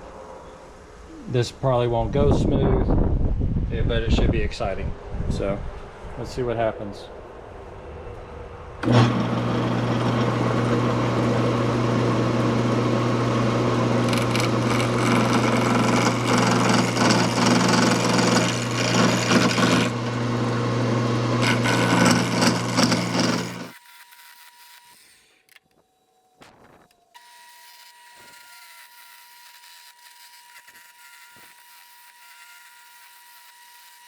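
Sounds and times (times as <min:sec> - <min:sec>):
turning tool scraping wood: 0:08.8 - 0:20.6, 0:21.3 - 0:25.2, 0:27.2 - 0:34.0
lathe motor humming: 0:08.8 - 0:25.0.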